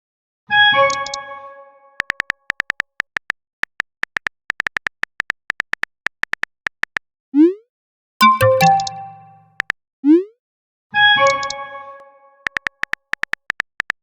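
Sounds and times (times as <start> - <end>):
phone keyboard typing clicks: 2.0 - 7.0, 8.2 - 9.7, 12.5 - 14.0
multi-note notification chime: 8.2 - 9.5.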